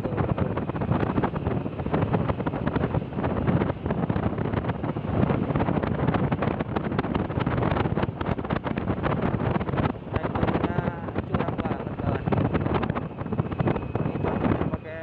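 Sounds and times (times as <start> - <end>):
vehicle running noise: 0.0 - 15.0
wind buffeting microphone: 0.0 - 15.0.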